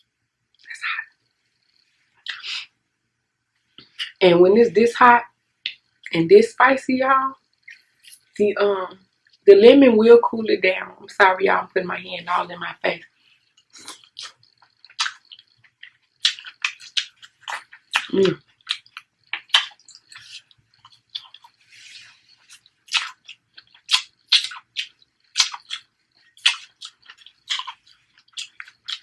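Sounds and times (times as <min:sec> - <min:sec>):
wet chewing with mouth clicks: 0:01.6 - 0:02.7, 0:13.4 - 0:29.0.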